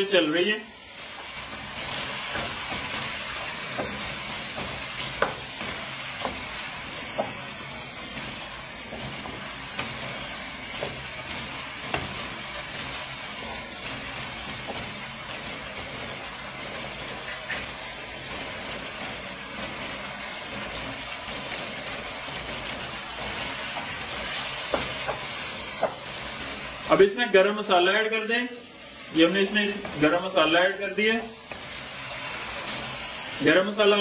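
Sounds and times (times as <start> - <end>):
curry sizzling in a wok: 0.0 - 34.0
spatula tapping and scraping pan: 1.2 - 7.7, 8.8 - 16.1, 22.4 - 26.5.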